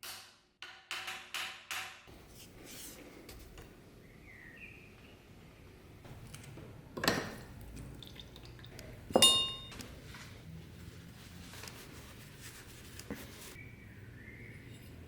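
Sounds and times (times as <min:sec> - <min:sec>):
ringing clink: 0:09.2 - 0:09.7.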